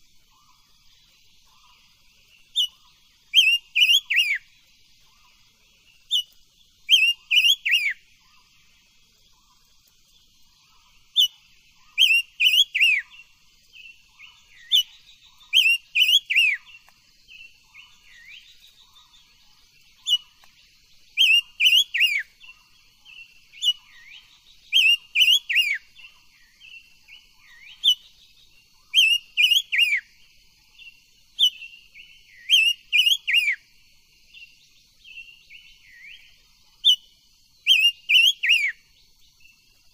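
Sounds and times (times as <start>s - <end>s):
bird whistling song: 2.4s - 4.5s, 5.9s - 8.1s, 11.0s - 19.3s, 19.9s - 20.5s, 21.1s - 30.1s, 30.8s - 33.7s, 34.3s - 38.9s.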